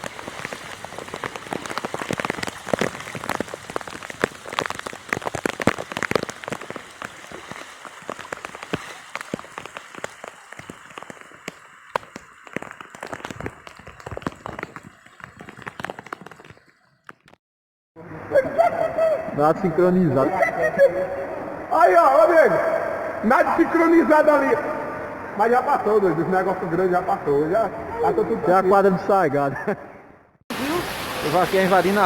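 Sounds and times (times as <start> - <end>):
heavy rain falling: 0.0 - 16.6, 30.5 - 32.0
sharp raindrop hits: 0.0 - 16.6.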